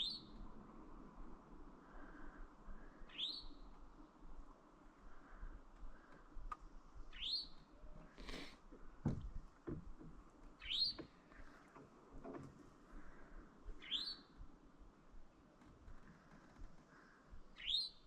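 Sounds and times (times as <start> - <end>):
songbird rising call: 2.9 - 3.7, 7.1 - 7.6, 10.6 - 11.1, 13.8 - 14.4, 17.6 - 18.0.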